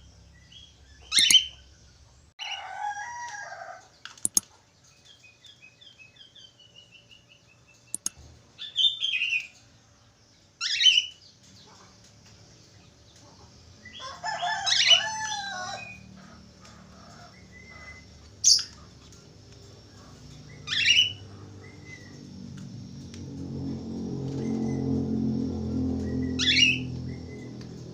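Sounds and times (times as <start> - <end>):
budgerigar chirping and whistling: 1.0 - 1.6, 20.6 - 22.1.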